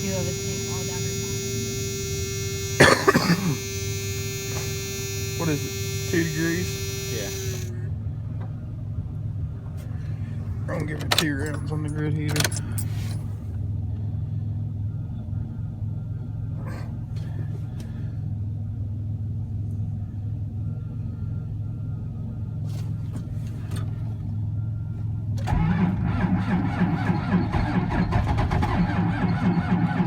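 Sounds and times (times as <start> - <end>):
diesel engine cranking and starting: 0.0 - 7.9, 25.4 - 30.0
diesel engine clattering: 0.0 - 14.0, 25.4 - 30.0
steady low hum: 0.0 - 25.4.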